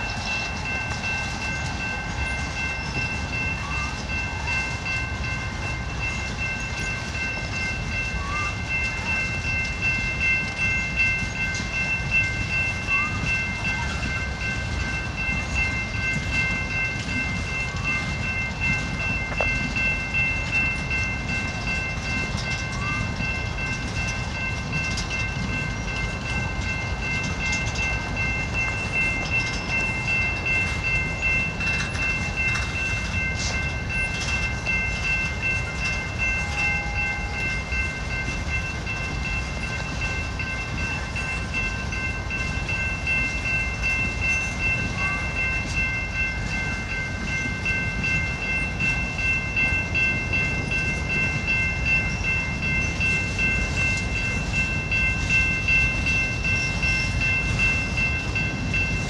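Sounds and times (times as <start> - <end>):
high-pitched ringing tone: 0.0 - 59.0
train wheels rumbling on rail: 0.0 - 59.0.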